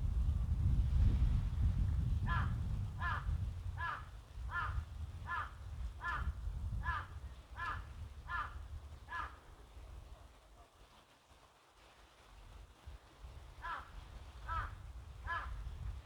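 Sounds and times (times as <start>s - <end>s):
low wind rumble: 0.0s - 9.2s, 13.2s - 16.0s
crow cawing: 3.8s - 6.3s, 14.5s - 14.7s, 15.3s - 15.5s.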